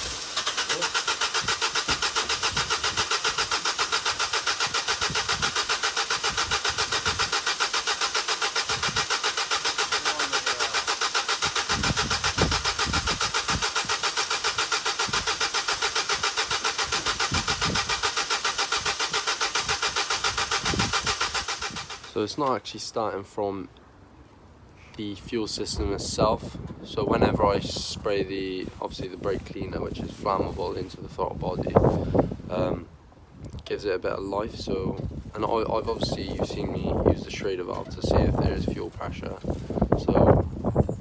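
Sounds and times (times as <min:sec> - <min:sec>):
engine cranking on starter motor: 0:00.0 - 0:22.4.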